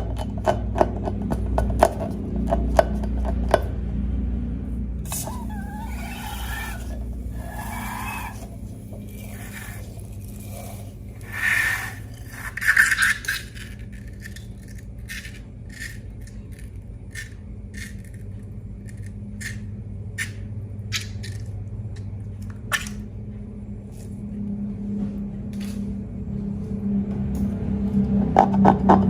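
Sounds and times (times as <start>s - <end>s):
steady low hum: 1.2s - 29.0s
slime squelching: 5.1s - 12.4s.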